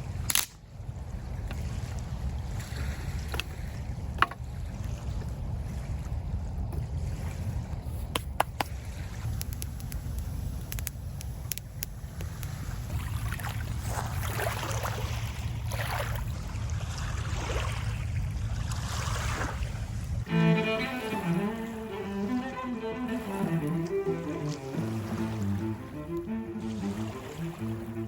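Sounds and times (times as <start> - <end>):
wind rumble on microphone: 0.0 - 20.3
kindling crackling and snapping: 0.3 - 0.6, 8.1 - 12.8
music: 20.3 - 28.0.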